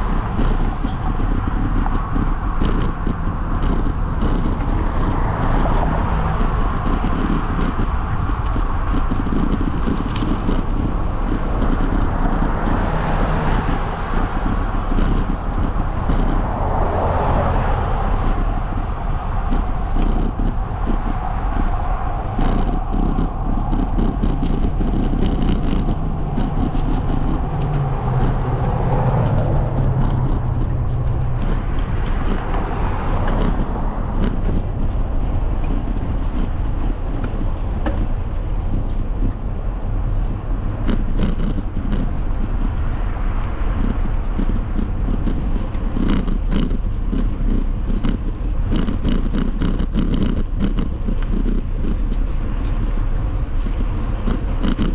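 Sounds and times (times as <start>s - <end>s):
road rumble: 0.0s - 54.9s
wind buffeting microphone: 0.0s - 54.9s.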